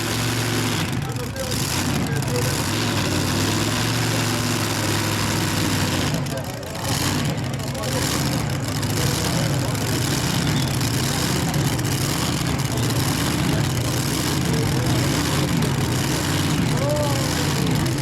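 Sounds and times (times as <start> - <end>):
tractor engines running loudly: 0.0 - 18.0.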